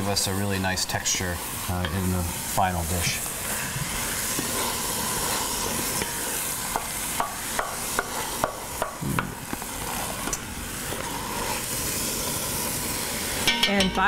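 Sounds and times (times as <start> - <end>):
vegetables sizzling in a pot: 0.0 - 14.0
spoons tapping against pot: 13.4 - 14.0.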